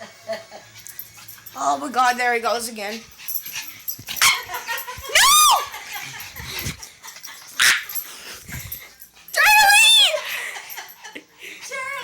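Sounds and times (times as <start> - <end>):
dog yelping bark: 4.2 - 4.6, 7.6 - 7.9.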